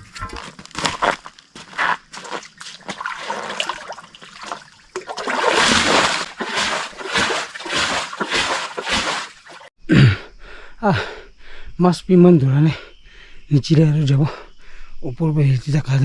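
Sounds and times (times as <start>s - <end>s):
water splashing and sloshing: 1.8s - 9.7s.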